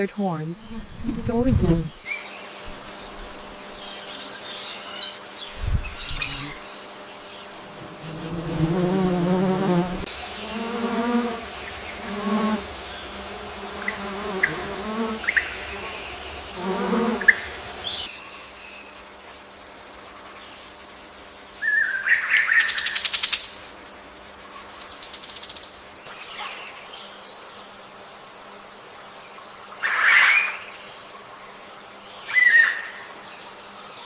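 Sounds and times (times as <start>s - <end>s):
flying insect buzzing: 0.0s - 34.0s
high bird chirps: 5.2s - 6.6s.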